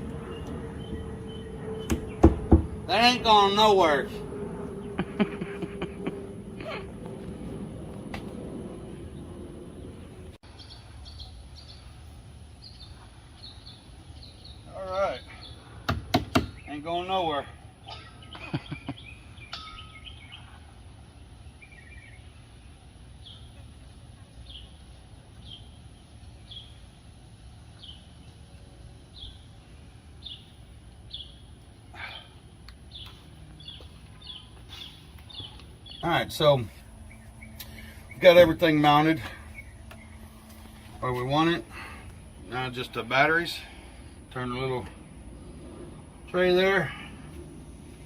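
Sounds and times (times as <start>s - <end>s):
low outdoor rumble: 0.0s - 48.0s
small bird chirping: 0.2s - 2.2s.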